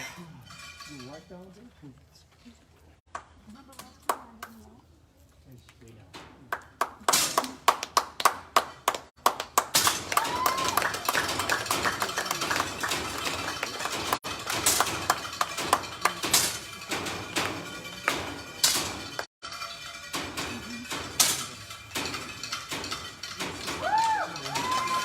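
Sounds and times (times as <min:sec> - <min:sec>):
sharp claps: 0:06.5 - 0:19.3.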